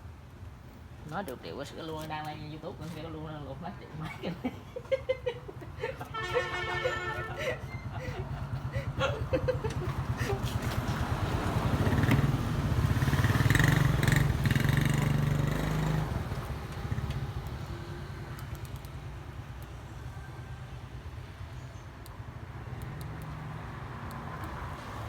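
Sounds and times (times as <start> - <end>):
engine running with low hum: 6.4 - 21.6.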